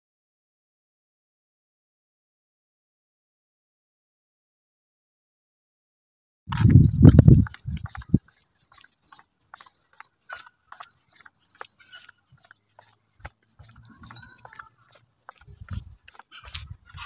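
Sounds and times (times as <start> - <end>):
birds chirping: 6.5 - 17.0.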